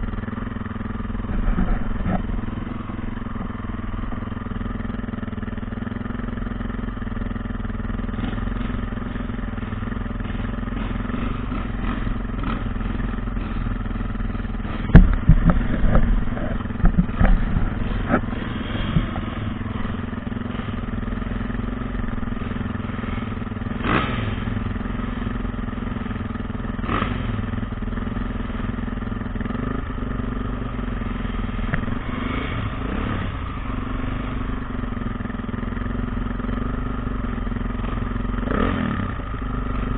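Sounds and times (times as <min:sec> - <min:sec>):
dirt bike engine running: 0:00.0 - 0:39.9
loud knocks and thumps: 0:14.6 - 0:19.2.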